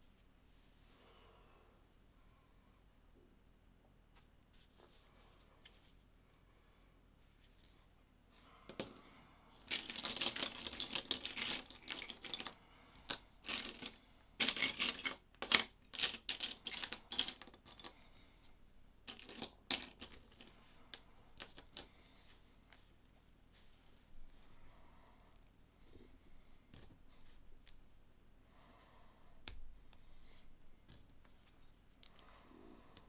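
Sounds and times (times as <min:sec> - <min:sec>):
plastic toy bricks clattering: 0:09.6 - 0:17.9, 0:19.1 - 0:20.5, 0:21.4 - 0:21.9.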